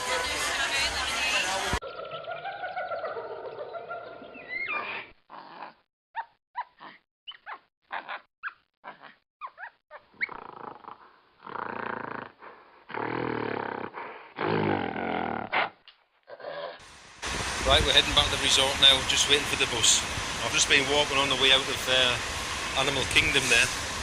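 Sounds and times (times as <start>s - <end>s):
animal growls or roars: 10.3s - 16.8s.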